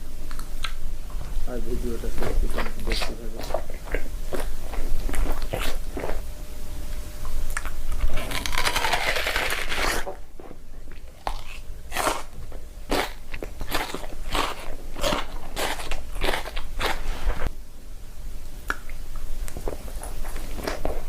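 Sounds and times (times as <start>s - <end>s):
crunching and chewing crisp food: 0.3s - 6.3s, 7.2s - 17.3s, 18.7s - 21.0s.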